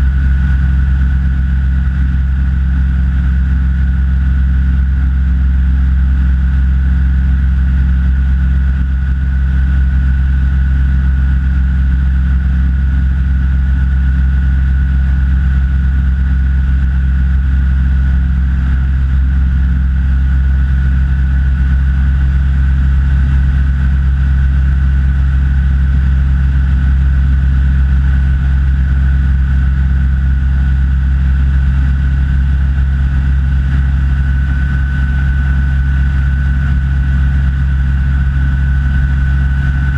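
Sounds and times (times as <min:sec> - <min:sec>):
light aircraft engine droning: 0:00.0 - 0:39.9
thin steady whine: 0:16.2 - 0:39.9.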